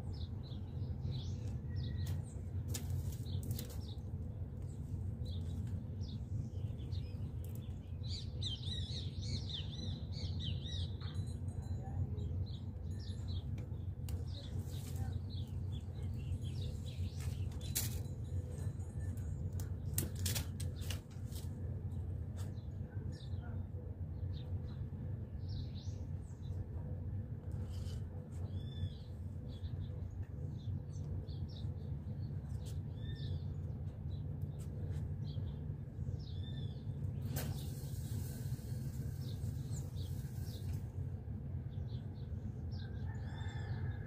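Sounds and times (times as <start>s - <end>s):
small birds chirping: 0.0s - 19.0s, 27.6s - 43.7s
steady low rumble: 0.0s - 44.0s.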